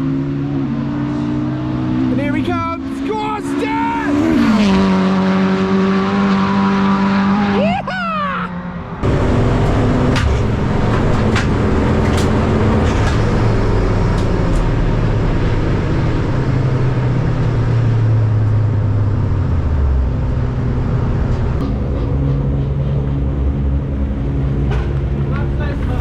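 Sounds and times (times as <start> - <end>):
car engines running at low revs: 8.7 - 26.0.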